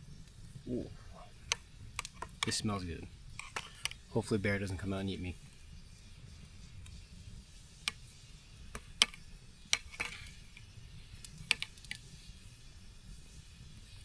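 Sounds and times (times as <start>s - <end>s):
sharp clicks and pops: 1.4s - 2.6s, 3.3s - 4.1s, 7.8s - 12.1s.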